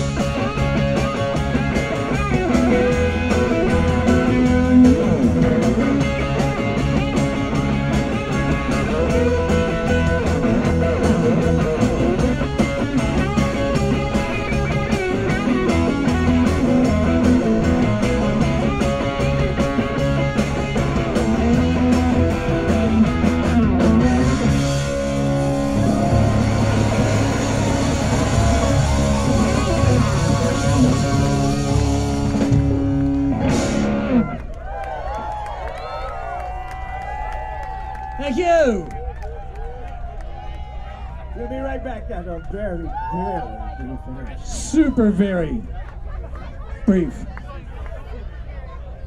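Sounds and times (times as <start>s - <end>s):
steady drum beat: 0.0s - 34.2s
electric guitar: 0.0s - 38.2s
bass guitar: 0.0s - 49.0s.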